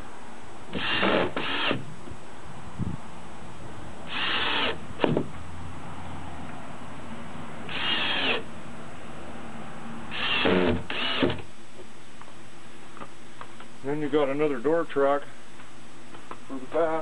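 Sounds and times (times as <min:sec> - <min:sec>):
screw gun motor whirring: 0:00.7 - 0:01.8, 0:04.1 - 0:04.8, 0:07.7 - 0:08.5, 0:10.1 - 0:11.4.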